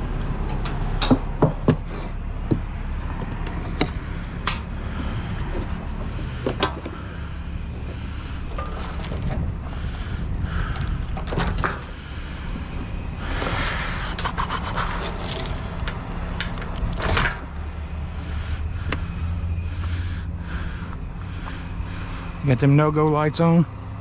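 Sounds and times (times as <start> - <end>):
truck engine idling: 0.0 - 24.0
metal pieces clinking: 0.1 - 1.3, 14.8 - 17.5.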